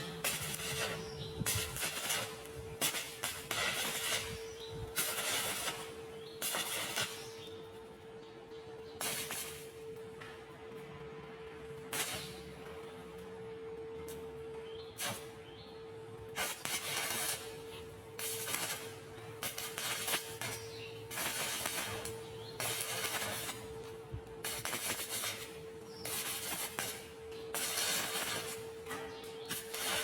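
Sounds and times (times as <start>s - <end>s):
arc welding crackling hiss: 0.0s - 7.8s, 9.0s - 10.0s, 11.7s - 12.7s, 15.0s - 15.4s, 16.3s - 30.0s.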